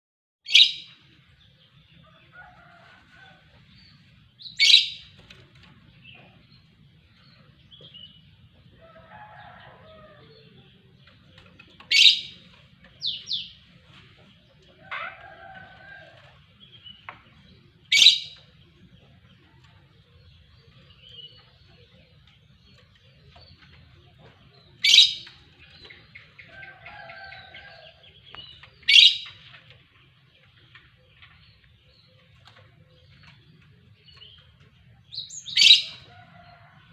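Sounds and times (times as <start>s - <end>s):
songbird calling: 17.9s - 18.5s, 24.8s - 29.4s, 35.2s - 36.6s.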